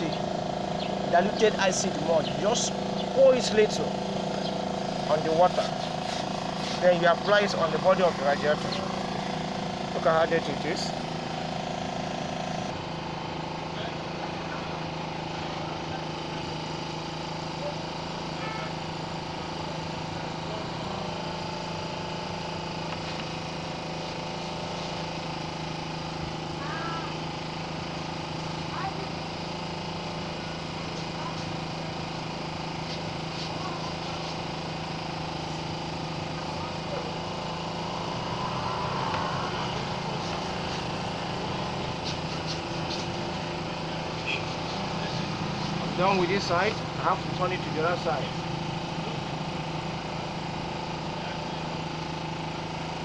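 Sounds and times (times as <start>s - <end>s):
engine running: 0.0s - 53.0s
brush scraping radiator fins: 4.8s - 9.2s, 39.8s - 46.6s.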